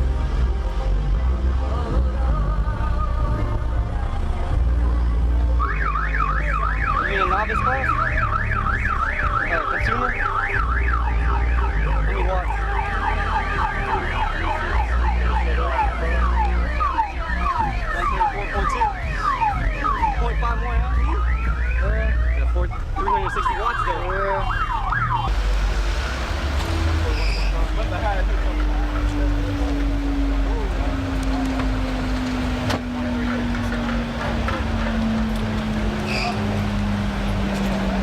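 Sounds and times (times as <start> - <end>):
deep bass: 0.0 - 38.0
car alarm siren: 5.6 - 25.3.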